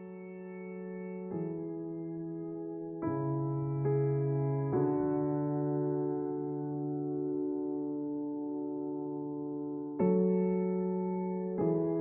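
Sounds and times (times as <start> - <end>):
soft sustained keyboard chord: 0.0 - 12.0.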